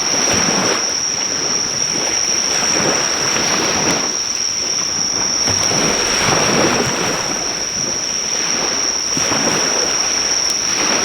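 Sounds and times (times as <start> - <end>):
sea waves washing on shore: 4.2 - 11.0
faint fire crackle: 4.4 - 10.9.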